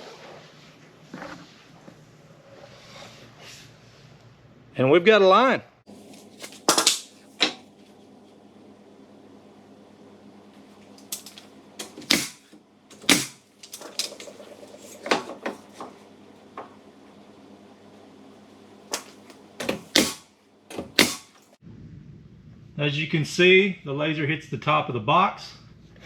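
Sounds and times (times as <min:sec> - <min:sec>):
sharp clicks and knocks: 0:11.0 - 0:16.0, 0:18.9 - 0:21.4.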